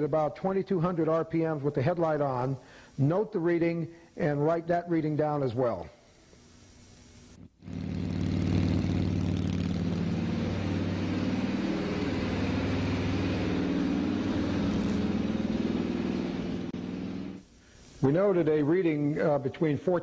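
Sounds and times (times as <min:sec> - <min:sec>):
motorcycle engine running: 0:07.5 - 0:17.4.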